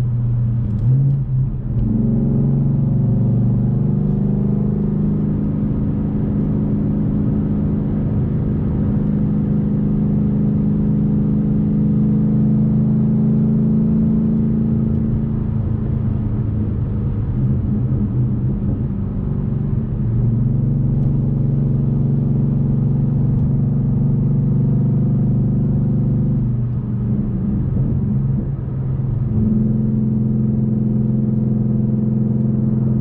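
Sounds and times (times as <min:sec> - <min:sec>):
car engine low drone: 0:00.0 - 0:33.0.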